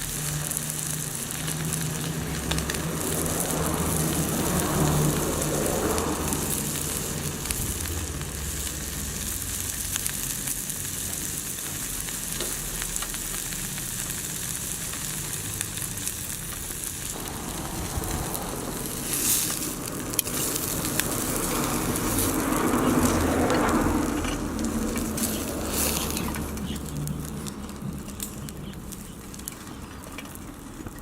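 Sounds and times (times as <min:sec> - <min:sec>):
food sizzling in a skillet: 0:00.0 - 0:27.5.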